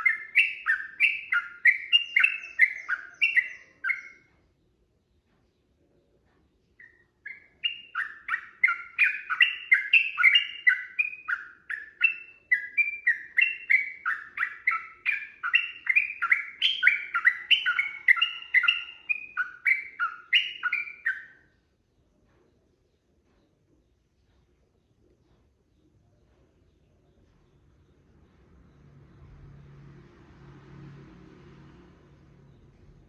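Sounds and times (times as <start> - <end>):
bird singing bubbly chirps: 0.0 - 4.2, 6.8 - 21.4.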